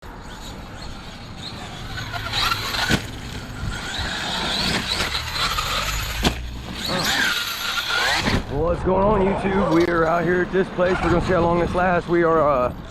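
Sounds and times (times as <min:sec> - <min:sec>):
electric motor whining: 0:00.1 - 0:08.6.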